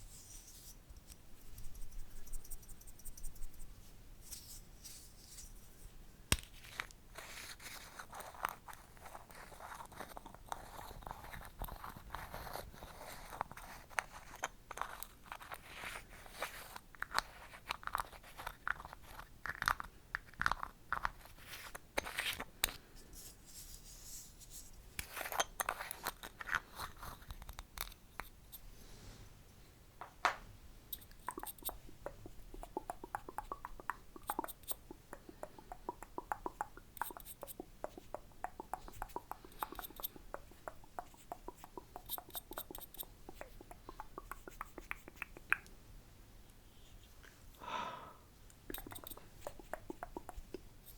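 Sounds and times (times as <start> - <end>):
tongue clicks: 30.9 - 45.7, 48.5 - 50.7
lip smacks: 31.0 - 45.8, 48.5 - 50.7.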